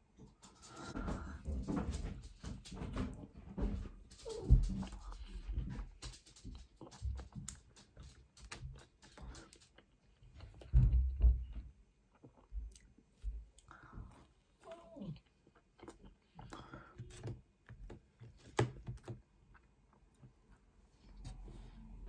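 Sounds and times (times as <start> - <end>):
chewing pizza crust: 4.1 - 21.2.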